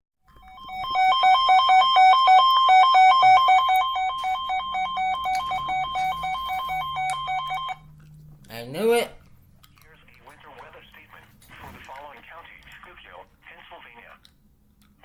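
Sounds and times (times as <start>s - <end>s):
two-tone electronic alert alarm: 0.3s - 7.9s.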